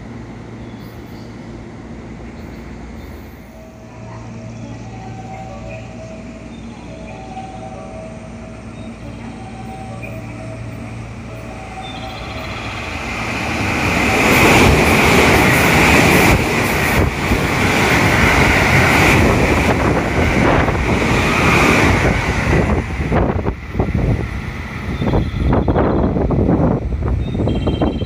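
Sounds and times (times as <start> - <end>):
train wheels rumbling on rail: 0.0 - 28.0
train clatter: 11.9 - 28.0.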